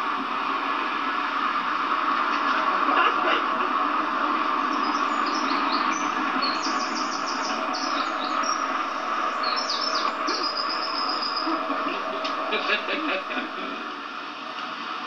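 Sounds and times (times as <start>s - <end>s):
steady background hiss: 0.0s - 15.0s
songbird singing: 4.5s - 13.6s.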